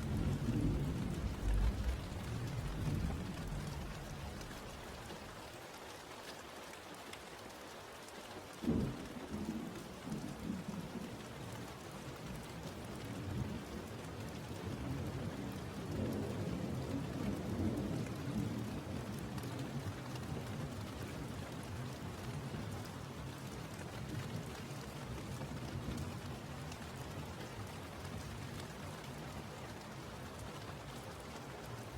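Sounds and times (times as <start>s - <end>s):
thunder rumbling: 0.0s - 5.3s
steady rain: 0.0s - 31.9s.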